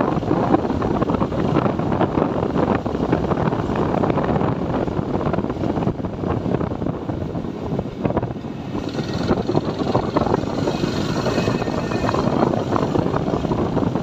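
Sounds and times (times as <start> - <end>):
wind rush on microphone: 0.0 - 14.0
motorcycle engine running: 8.1 - 14.0.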